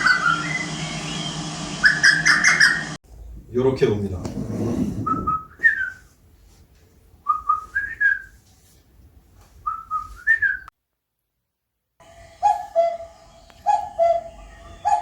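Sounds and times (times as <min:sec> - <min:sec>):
person whistling bird song: 0:05.1 - 0:06.0, 0:07.3 - 0:08.3, 0:09.7 - 0:10.7.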